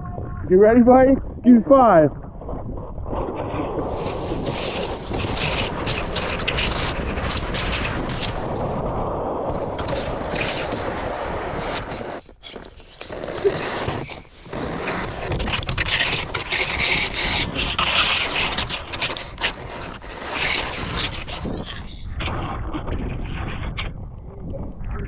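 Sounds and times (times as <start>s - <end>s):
wind buffeting microphone: 0.0s - 25.0s
sled sliding over snow: 3.1s - 22.8s.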